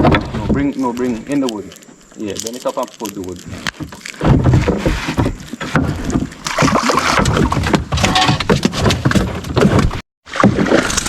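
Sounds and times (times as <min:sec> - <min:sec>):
water splashing against hull: 0:03.5 - 0:08.6.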